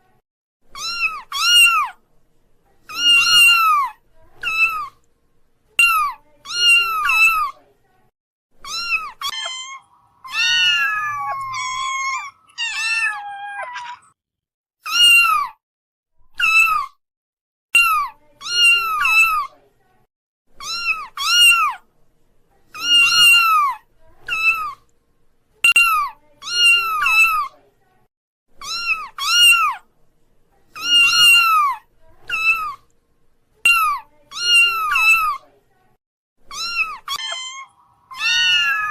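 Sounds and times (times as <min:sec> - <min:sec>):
kittens meowing: 0:00.8 - 0:02.0, 0:02.9 - 0:05.0, 0:08.7 - 0:14.2, 0:28.6 - 0:29.8, 0:30.8 - 0:32.8, 0:36.5 - 0:38.9.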